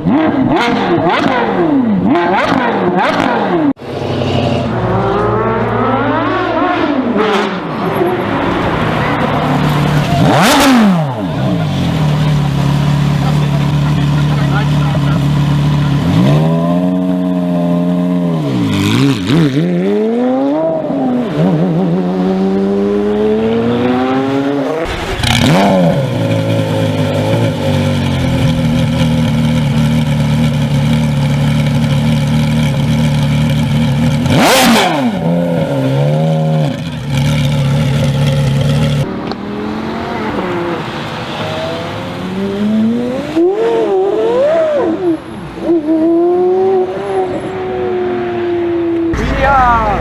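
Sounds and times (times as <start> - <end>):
sports car engine revving: 0.0 - 50.0
sharp crack: 24.7 - 27.7, 49.1 - 50.0.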